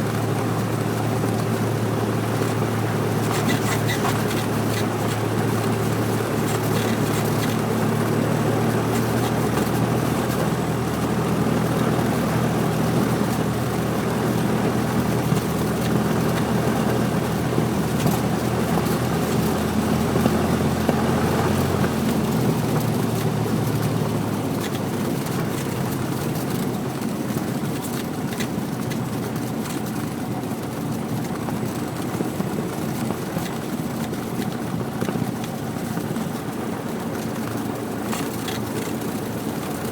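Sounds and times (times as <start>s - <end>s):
airplane engine drone: 0.0s - 27.6s.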